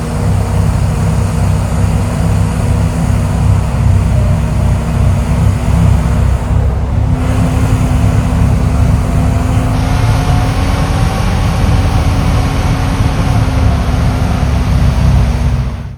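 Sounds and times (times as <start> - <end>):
heavy diesel machinery rumbling: 0.0 - 15.9.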